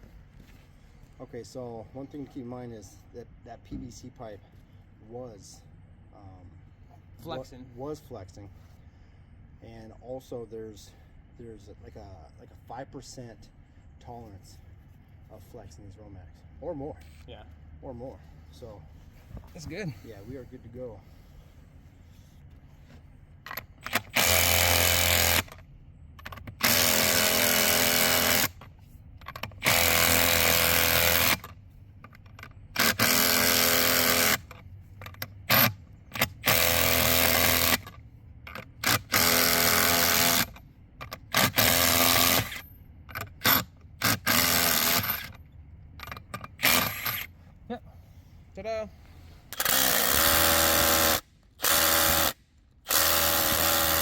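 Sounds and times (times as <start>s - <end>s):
power drill running a socket: 23.9s - 25.6s, 26.5s - 28.6s, 29.6s - 31.5s, 32.8s - 34.5s, 35.5s - 37.9s, 38.8s - 40.6s, 41.3s - 42.6s, 43.4s - 45.3s, 46.6s - 47.2s, 49.5s - 54.0s.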